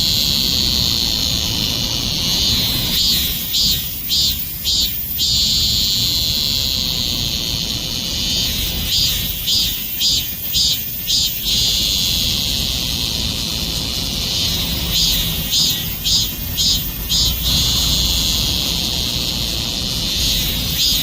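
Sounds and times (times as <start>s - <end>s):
cicada buzzing: 0.0s - 21.0s.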